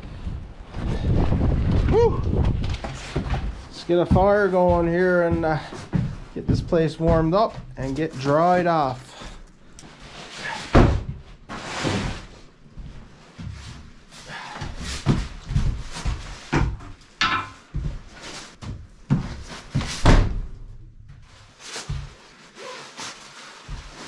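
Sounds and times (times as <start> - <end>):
rustling and scraping: 0.0 - 20.1, 21.1 - 24.0
objects knocking and thumping: 0.2 - 7.8, 14.5 - 22.2.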